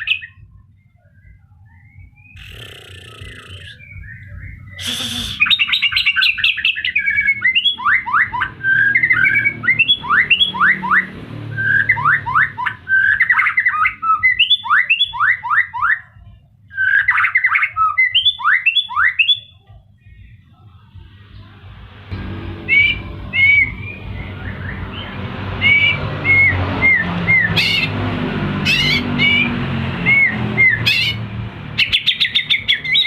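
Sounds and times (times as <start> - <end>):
bird singing trills and whistles: 0.0 - 19.6, 28.7 - 31.2, 31.8 - 33.0.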